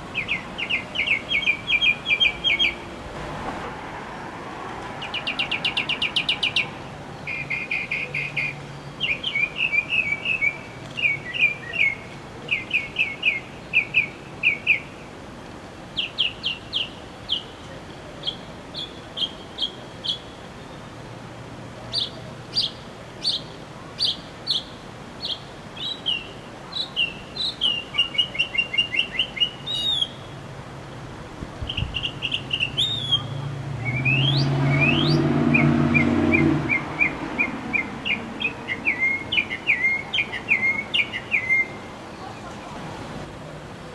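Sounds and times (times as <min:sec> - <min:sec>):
songbird chirps and trills: 0:00.0 - 0:03.0, 0:05.0 - 0:15.1, 0:15.9 - 0:21.0, 0:21.8 - 0:30.5, 0:31.4 - 0:43.2.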